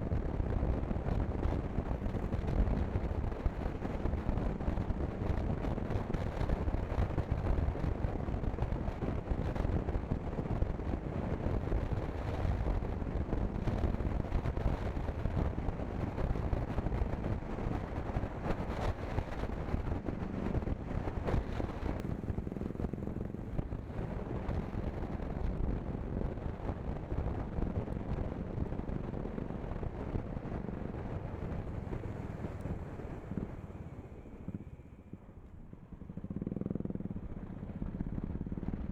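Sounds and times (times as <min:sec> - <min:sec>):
wind buffeting microphone: 0:00.0 - 0:38.9
motorcycle engine running: 0:30.3 - 0:38.9.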